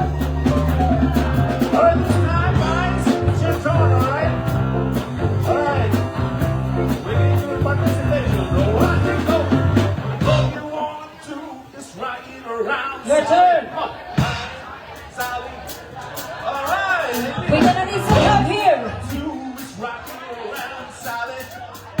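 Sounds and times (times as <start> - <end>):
live rock and roll band: 0.0 - 10.9, 14.0 - 22.0
person singing: 0.0 - 11.0.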